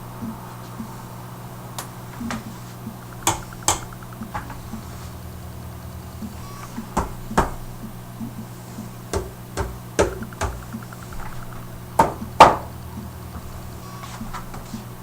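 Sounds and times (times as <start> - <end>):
steady low hum: 0.0 - 15.0
knocks and thumps: 2.2 - 5.2, 6.2 - 15.0.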